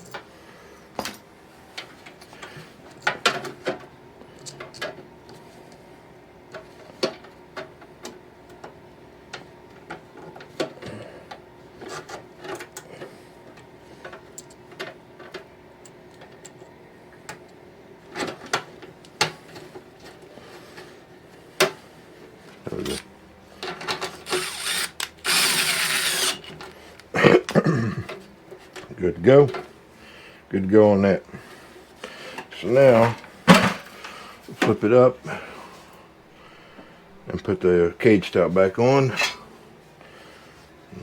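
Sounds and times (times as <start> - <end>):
faint steady hum: 0.0 - 41.0
small metal parts clicking: 24.3 - 26.4.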